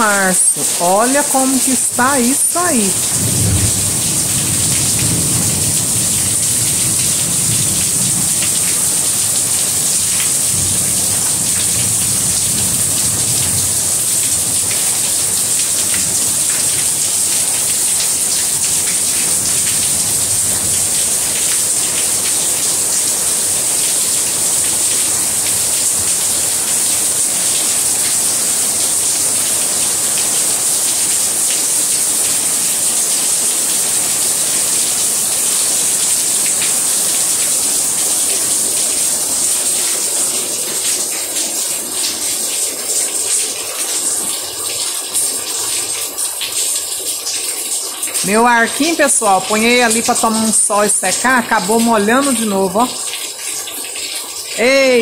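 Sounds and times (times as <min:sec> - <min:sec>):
heavy rain splashing: 0:00.0 - 0:55.0.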